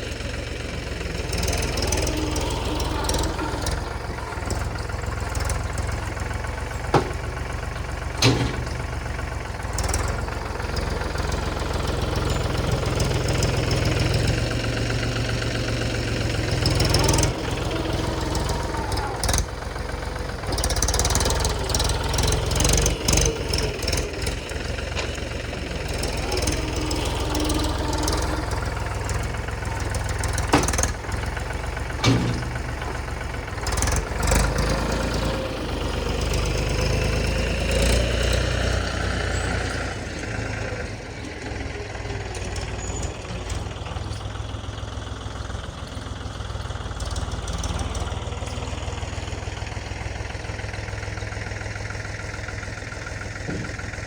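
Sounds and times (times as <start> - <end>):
tractor diesel engine running: 0.0 - 54.0
sharp knocks and clanks: 6.8 - 9.2, 21.2 - 33.2, 53.4 - 54.0.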